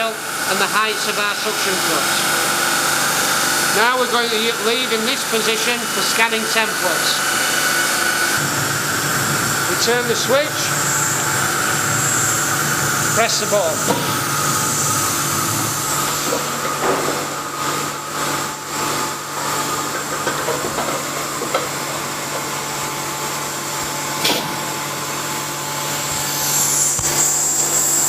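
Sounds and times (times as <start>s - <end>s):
machine humming with high whine: 0.0s - 28.0s.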